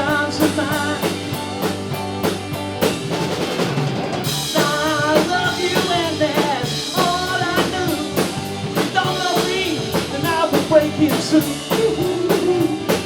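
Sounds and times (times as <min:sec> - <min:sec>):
rock band playing: 0:00.0 - 0:13.0
drum hits: 0:01.0 - 0:13.0.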